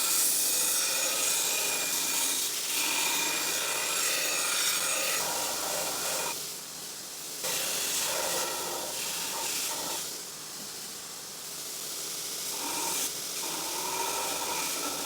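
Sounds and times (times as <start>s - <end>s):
steel blade grinding: 12.5s - 15.0s.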